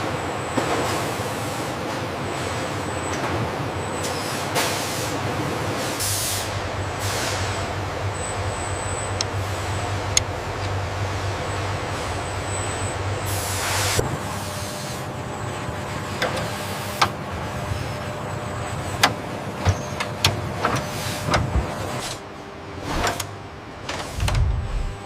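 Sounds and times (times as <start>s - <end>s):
low machine hum: 21.4s - 25.0s.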